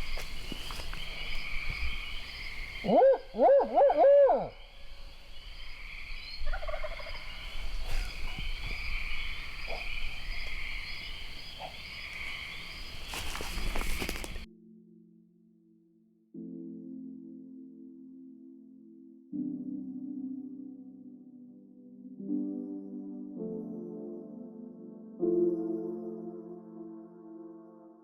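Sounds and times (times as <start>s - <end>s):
chorus of frogs: 0.0s - 3.8s, 4.4s - 14.5s
owl hooting: 1.2s - 5.0s.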